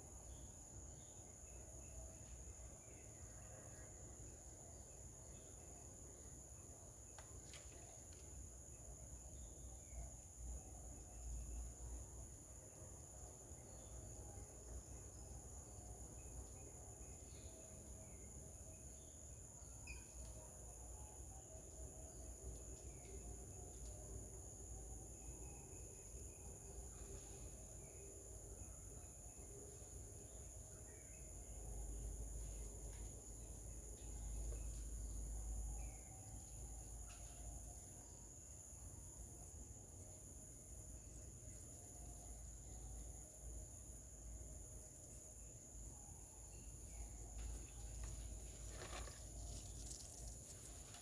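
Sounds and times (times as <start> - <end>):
insects trilling: 0.1 - 51.0
faint bird chirps: 16.2 - 21.8.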